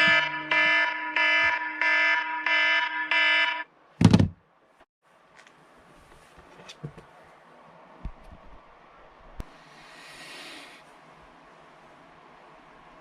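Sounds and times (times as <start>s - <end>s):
buzzy alarm tone pulses: 0.0s - 3.7s.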